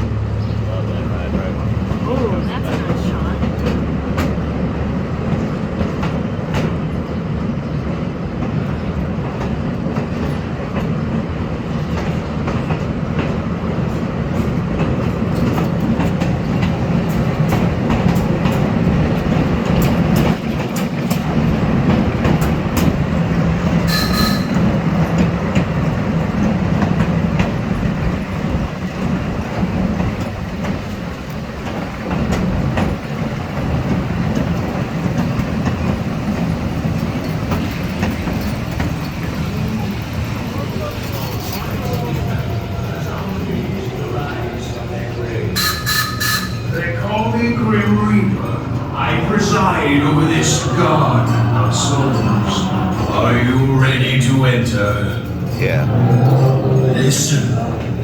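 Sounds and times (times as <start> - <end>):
train rumbling with wheels clicking: 0.0 - 58.0
high-pitched squeal: 48.2 - 57.8.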